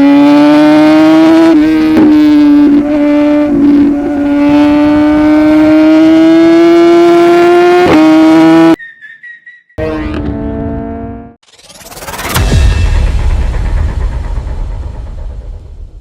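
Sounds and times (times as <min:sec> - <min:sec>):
motorcycle engine at high revs: 0:00.0 - 0:08.8, 0:09.8 - 0:11.4.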